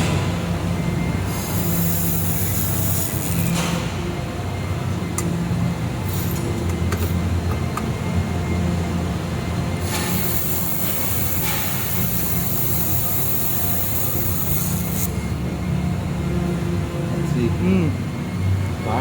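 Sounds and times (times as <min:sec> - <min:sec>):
laser welder humming: 0:00.0 - 0:04.5, 0:09.6 - 0:15.5.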